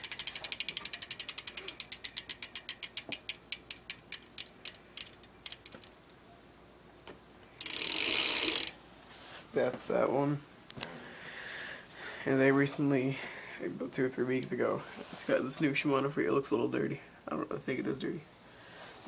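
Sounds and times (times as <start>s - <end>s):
bicycle freewheel clicking: 0.0s - 5.9s, 7.6s - 8.8s.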